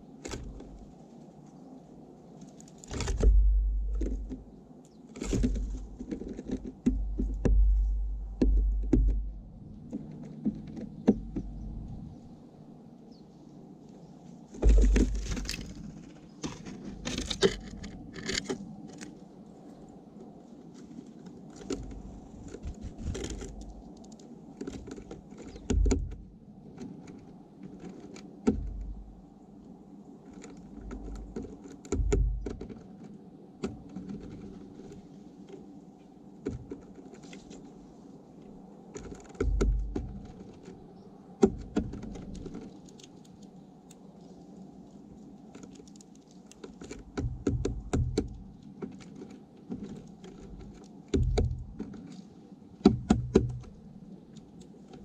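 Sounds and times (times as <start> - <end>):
steady low hum: 0.0 - 45.5, 46.6 - 55.0
low thumps: 3.0 - 4.4, 6.8 - 9.9, 32.0 - 32.6, 39.4 - 40.2, 47.2 - 48.4, 51.2 - 51.8.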